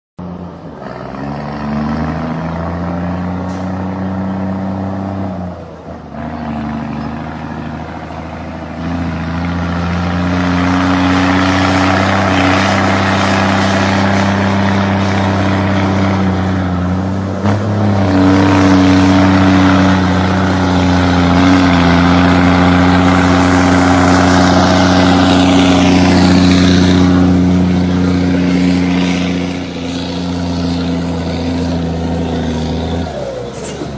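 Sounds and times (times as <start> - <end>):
truck diesel engine pulling hard: 0.2 - 33.9.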